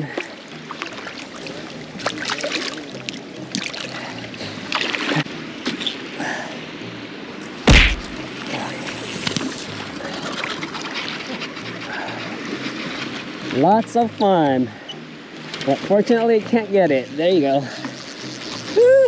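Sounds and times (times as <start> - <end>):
river water running: 0.0 - 19.0
loud thump: 7.7 - 8.2.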